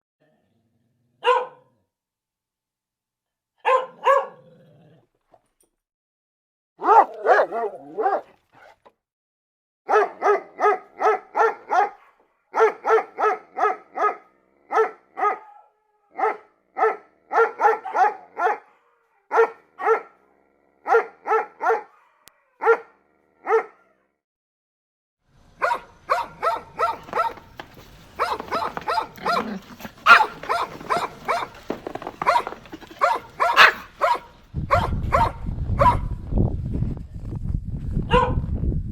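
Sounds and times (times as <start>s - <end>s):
dog barking: 1.2s - 1.8s, 3.6s - 4.5s, 6.8s - 8.8s, 9.9s - 24.1s, 25.6s - 36.1s, 38.1s - 38.5s.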